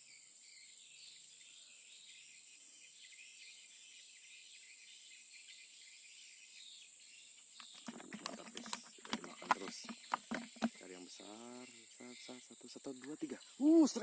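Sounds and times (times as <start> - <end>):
insects chirring: 0.0 - 14.0
sharp clicks: 7.6 - 10.8.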